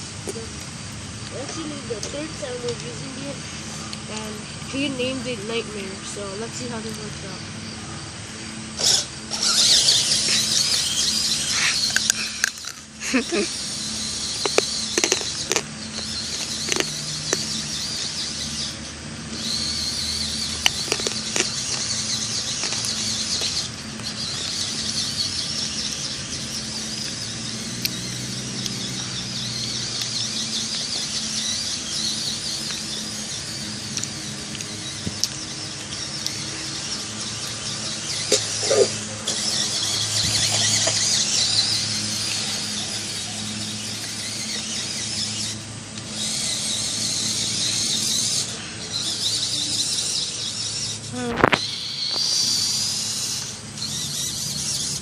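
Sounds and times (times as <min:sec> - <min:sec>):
rc car motor whining: 0:00.0 - 0:55.0
sharp clicks and knocks: 0:14.4 - 0:18.1.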